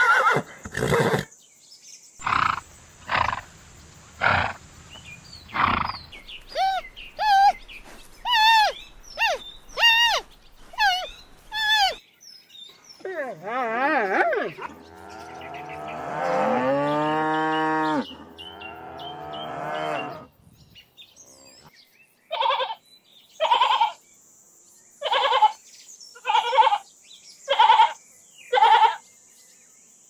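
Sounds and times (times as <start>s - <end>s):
cow mooing: 13.6s - 20.3s.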